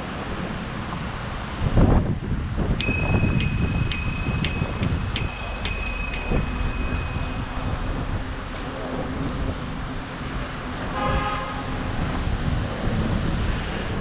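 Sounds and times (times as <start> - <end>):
wind and riding noise: 0.0 - 14.0
bicycle bell ringing: 2.8 - 8.7.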